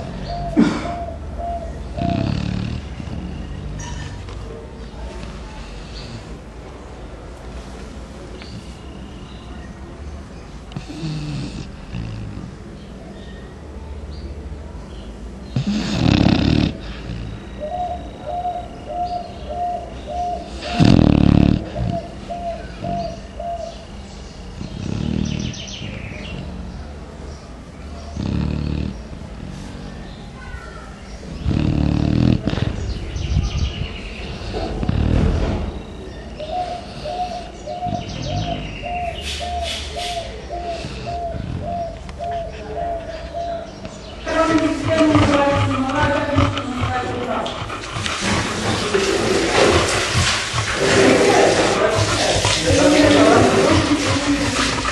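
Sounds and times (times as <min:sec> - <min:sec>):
dog snoring: 0:00.0 - 0:04.4, 0:05.2 - 0:06.4, 0:10.7 - 0:12.6, 0:15.5 - 0:18.6, 0:19.7 - 0:23.6, 0:24.6 - 0:27.0, 0:28.0 - 0:30.1, 0:31.2 - 0:33.3, 0:34.2 - 0:35.7, 0:36.4 - 0:39.6, 0:40.5 - 0:43.0, 0:44.2 - 0:54.9
birds chirping: 0:00.0 - 0:54.9
bird hooting: 0:00.2 - 0:02.4, 0:17.5 - 0:21.0, 0:21.8 - 0:23.8, 0:36.4 - 0:47.5.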